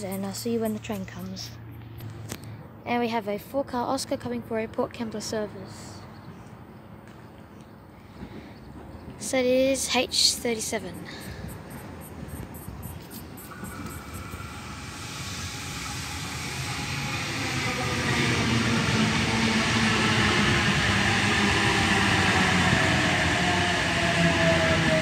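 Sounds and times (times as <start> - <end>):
electric train arriving: 8.3 - 25.0
train whine falling in pitch: 11.5 - 25.0.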